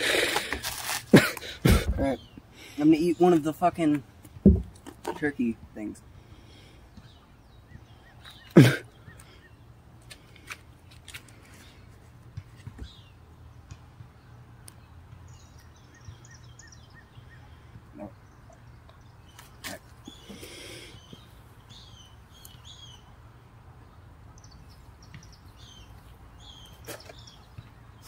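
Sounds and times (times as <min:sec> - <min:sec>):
small bird chirping: 0:14.8 - 0:23.1, 0:24.4 - 0:28.0.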